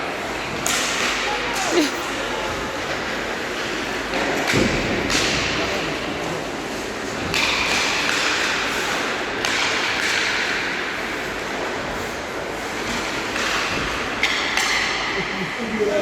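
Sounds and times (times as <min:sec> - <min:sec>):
hockey sticks and puck knocking: 0:03.6 - 0:05.7, 0:07.1 - 0:10.9, 0:12.8 - 0:15.1.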